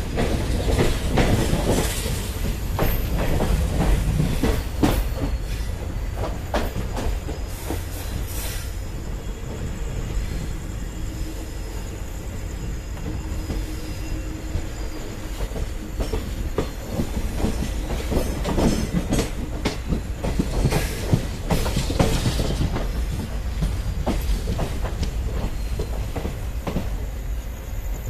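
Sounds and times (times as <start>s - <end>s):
train rumble: 0.0s - 28.0s
wheels clattering over rail joints: 15.3s - 26.8s.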